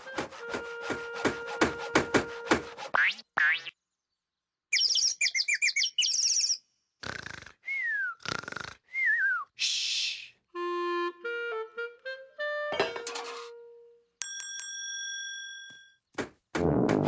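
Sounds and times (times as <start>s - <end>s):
cartoon bird chirps: 4.7s - 7.5s.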